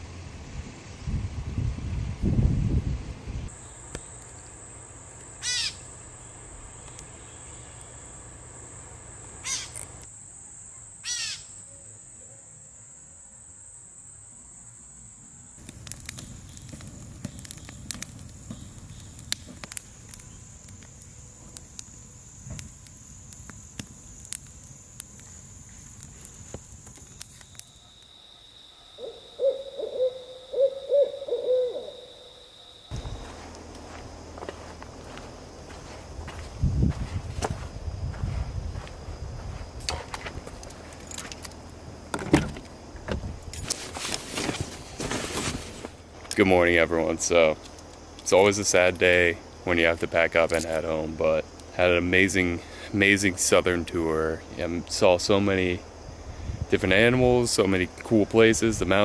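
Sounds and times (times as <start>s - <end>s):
high-pitched insect trill: 3.4s - 45.2s, 46.0s - 59.0s
owl hooting: 5.4s - 5.9s, 9.4s - 9.9s, 11.0s - 11.9s, 27.8s - 33.0s.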